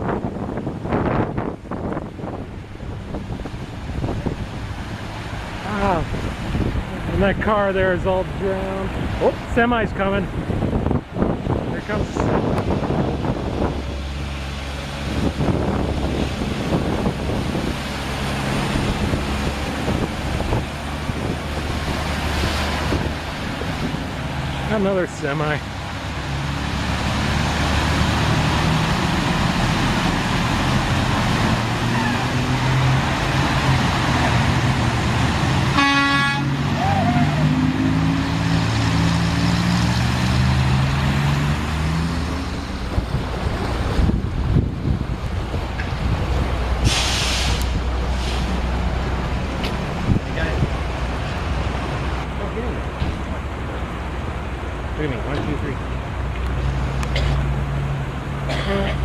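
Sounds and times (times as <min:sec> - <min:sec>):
wind noise on microphone: 0:00.0 - 0:25.0, 0:38.5 - 0:52.4
diesel truck engine droning: 0:00.0 - 0:59.0
rushing water: 0:00.0 - 0:59.0.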